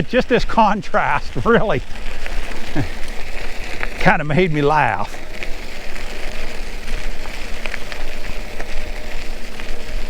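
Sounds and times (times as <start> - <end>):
tyre noise: 0.0 - 10.0
faint ticks: 5.0 - 10.0.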